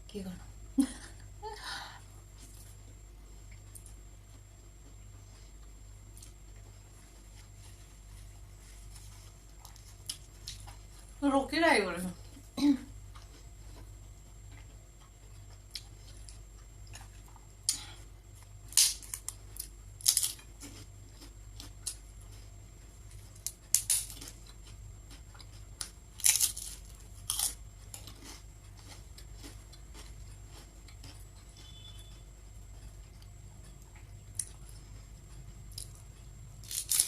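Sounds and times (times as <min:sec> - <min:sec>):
chips crunching: 0:18.7 - 0:22.0, 0:23.1 - 0:31.8, 0:36.6 - 0:37.0.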